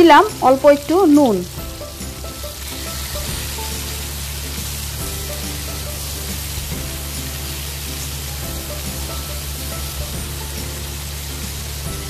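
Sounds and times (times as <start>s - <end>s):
background music: 0.0s - 12.0s
vegetables sizzling in hot oil: 0.0s - 12.0s.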